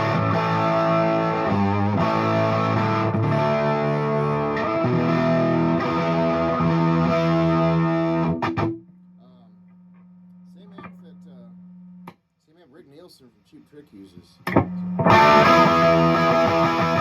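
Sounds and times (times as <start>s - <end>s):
electric guitar chords: 0.0s - 8.8s, 14.5s - 17.0s.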